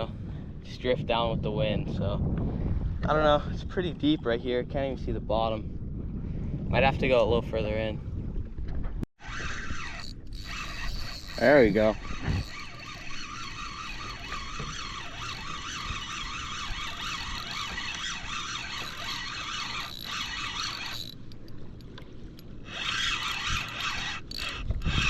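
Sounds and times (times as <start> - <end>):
fishing reel whirring: 9.2 - 25.0.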